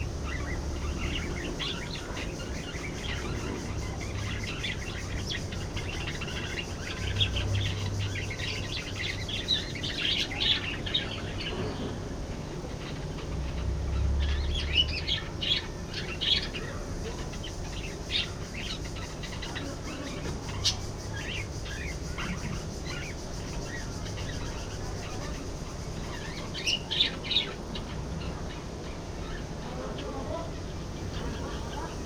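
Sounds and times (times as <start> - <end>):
budgerigars chirping: 0.0 - 11.8, 12.6 - 32.0
steady low hum: 0.0 - 32.0.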